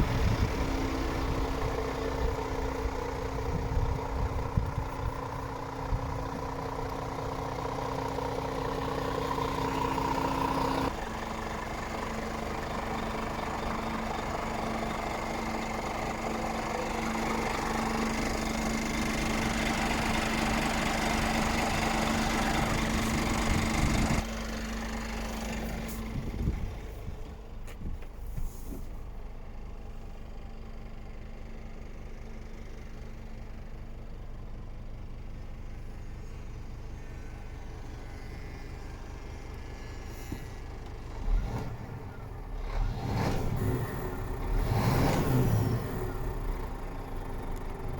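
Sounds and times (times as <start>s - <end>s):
diesel truck engine idling: 0.0s - 47.9s.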